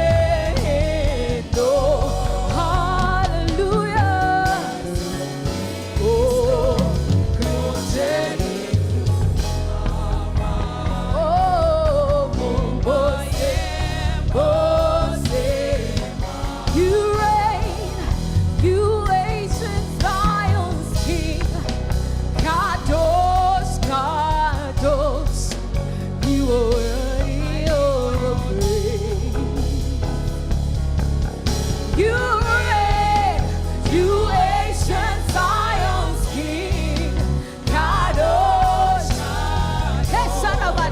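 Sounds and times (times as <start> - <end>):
band with bass and drums: 0.0 - 40.9
lead singer: 0.0 - 40.9
backing vocals: 32.0 - 40.9.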